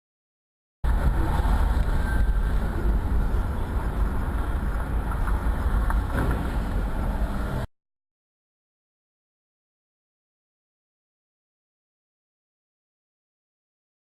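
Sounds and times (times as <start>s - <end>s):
road and engine rumble: 0.8s - 7.7s.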